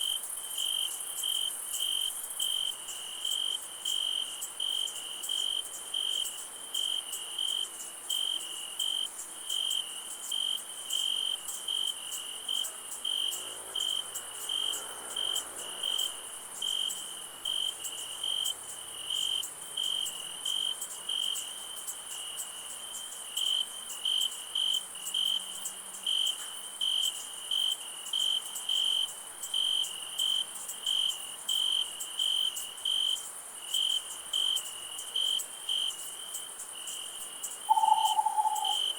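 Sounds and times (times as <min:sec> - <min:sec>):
crickets chirping: 0:00.0 - 0:38.9
high insect buzz: 0:37.4 - 0:38.9.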